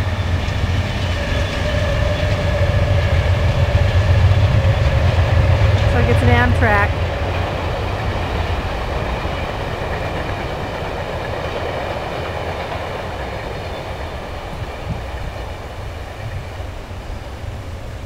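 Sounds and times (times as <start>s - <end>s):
passenger train rumbling past: 0.0s - 18.0s.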